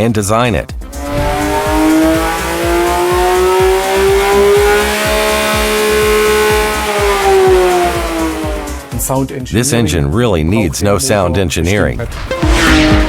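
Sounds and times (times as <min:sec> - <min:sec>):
car engine revving hard: 0:00.8 - 0:09.2, 0:11.9 - 0:13.0.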